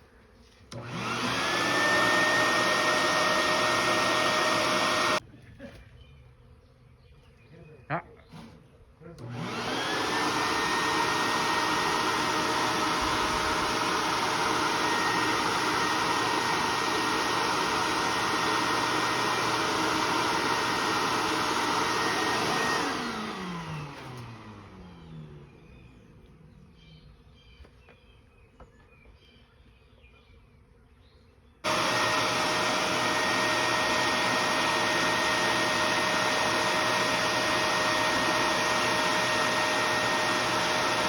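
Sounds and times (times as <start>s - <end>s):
vacuum motor whine: 0.7s - 5.2s, 9.2s - 27.5s, 31.6s - 41.0s.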